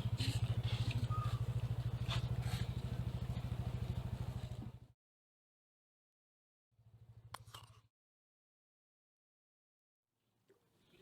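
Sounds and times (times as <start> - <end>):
small motorcycle engine running: 0.0 - 4.9.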